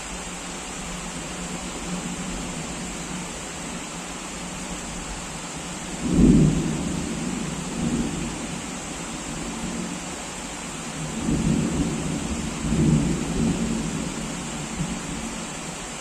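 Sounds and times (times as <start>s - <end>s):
heavy rain: 0.0s - 16.0s
thunder clap rumbling: 6.0s - 8.4s.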